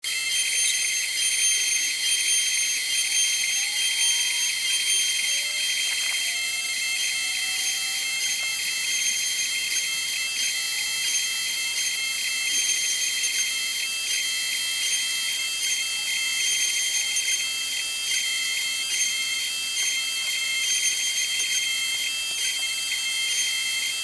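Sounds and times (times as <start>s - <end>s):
cnc router high-pitched whine: 0.0s - 24.0s.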